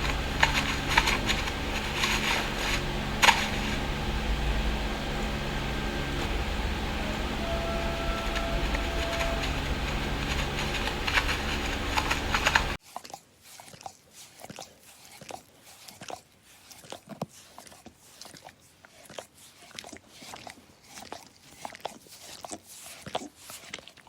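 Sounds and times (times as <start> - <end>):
soft crunching and clicking: 0.0 - 4.2, 6.2 - 13.1
loud steady rumble: 0.0 - 12.8.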